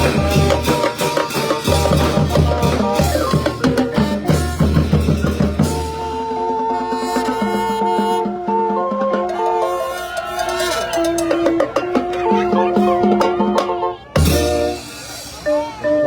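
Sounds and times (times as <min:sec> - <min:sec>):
bass drum and snare: 0:00.0 - 0:06.3
brass band playing: 0:00.0 - 0:16.0.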